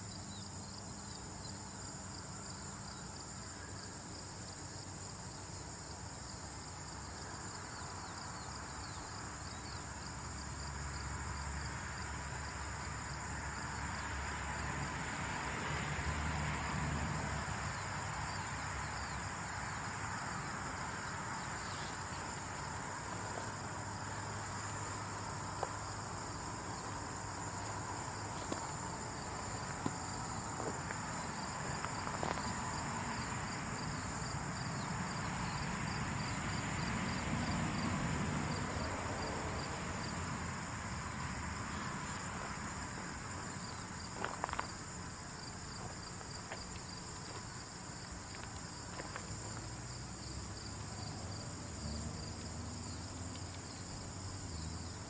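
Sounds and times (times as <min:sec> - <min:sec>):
cricket-like chirping: 0:00.0 - 0:55.0
faint ticks and crackles: 0:52.3 - 0:54.0.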